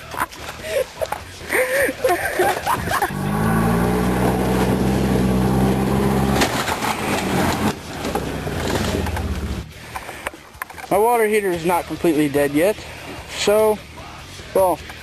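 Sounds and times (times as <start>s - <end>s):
golf cart engine running: 2.6s - 10.0s.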